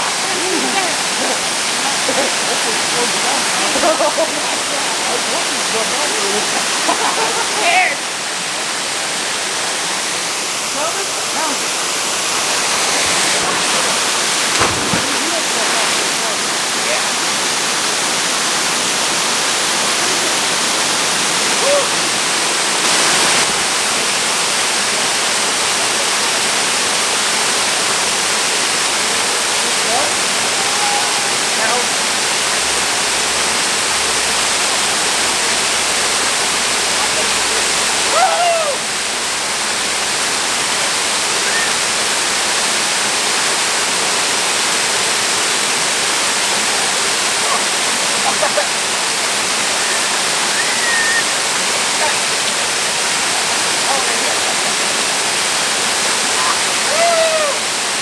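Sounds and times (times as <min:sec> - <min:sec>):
waterfall rushing: 0:00.0 - 0:58.0
faint voice: 0:21.6 - 0:22.1.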